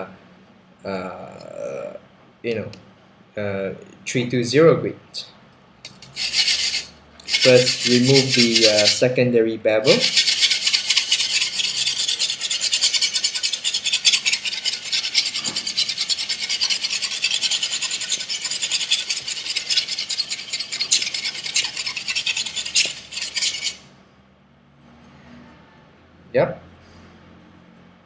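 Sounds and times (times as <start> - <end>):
knife scraping on sandpaper: 5.9 - 9.0, 9.9 - 23.8.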